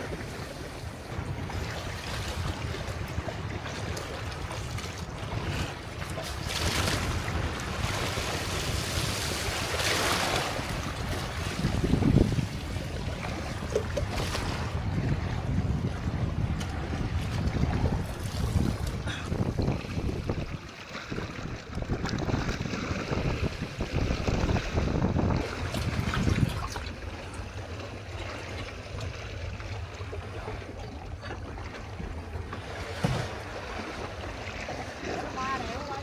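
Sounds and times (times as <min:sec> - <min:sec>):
wind buffeting the microphone: 0:00.0 - 0:28.7
sea waves: 0:00.0 - 0:36.0.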